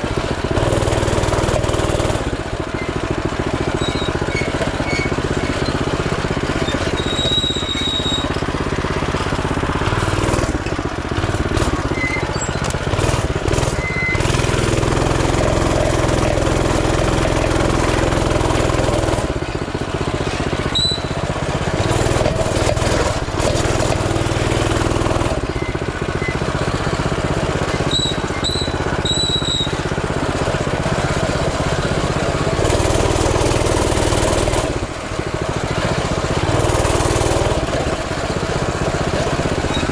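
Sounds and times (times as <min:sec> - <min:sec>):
mini bike engine revving: 0:00.0 - 0:39.9
high squeaks: 0:03.7 - 0:05.9, 0:06.6 - 0:08.4, 0:11.9 - 0:12.8, 0:20.5 - 0:21.2, 0:27.7 - 0:29.8.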